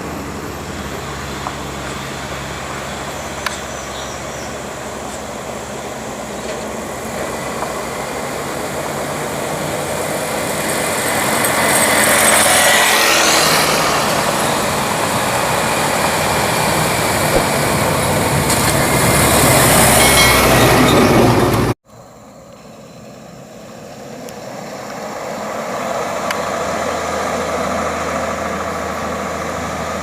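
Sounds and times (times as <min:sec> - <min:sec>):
truck diesel engine under load: 0:00.0 - 0:21.8, 0:24.1 - 0:30.0.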